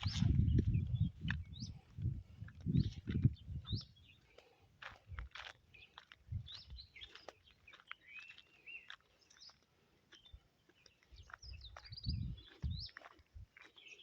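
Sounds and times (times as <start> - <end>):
soft low thumps: 0.0 - 3.9
birds chirping: 0.0 - 14.0.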